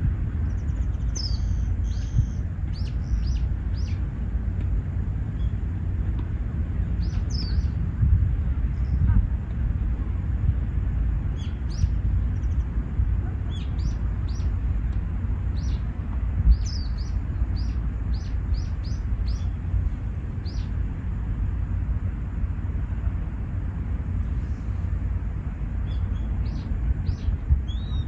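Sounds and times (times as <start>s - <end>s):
steady low rumble: 0.0s - 28.0s
small birds chirping: 0.3s - 4.2s, 5.2s - 9.2s, 11.3s - 20.9s, 25.7s - 28.0s.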